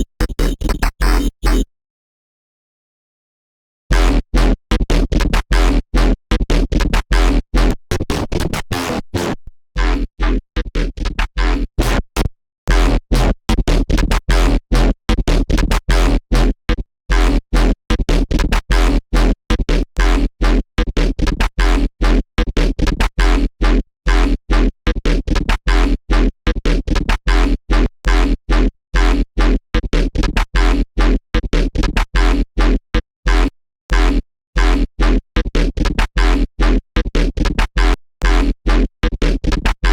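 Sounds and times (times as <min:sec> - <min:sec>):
chopped synthesizer notes: 0:00.0 - 0:01.4.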